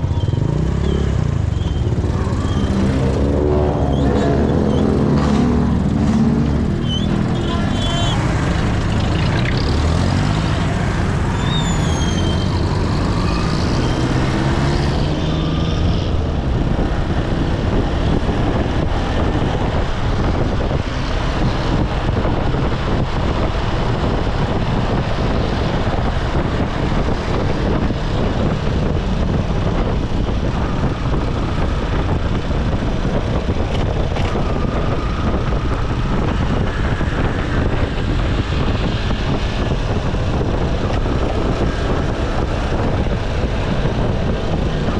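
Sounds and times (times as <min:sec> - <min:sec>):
road and wind noise: 0:00.0 - 0:44.9.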